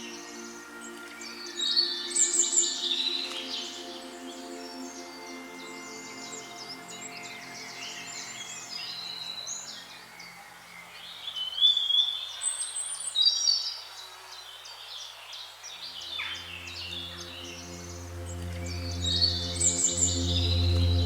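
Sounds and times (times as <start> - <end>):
soft music drone: 0.0 - 10.6, 15.9 - 21.0
deep tone: 16.3 - 21.0.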